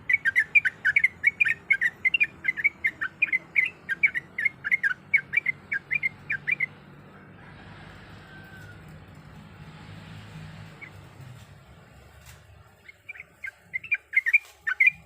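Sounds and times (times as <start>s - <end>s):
bird singing bubbly whistled notes: 0.0s - 6.7s, 12.8s - 15.0s.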